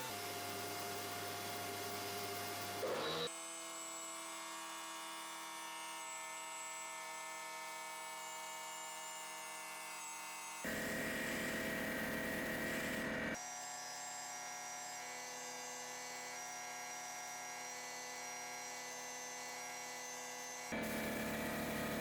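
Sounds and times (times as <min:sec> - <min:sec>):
electric motor humming: 0:10.6 - 0:13.4, 0:20.7 - 0:22.0.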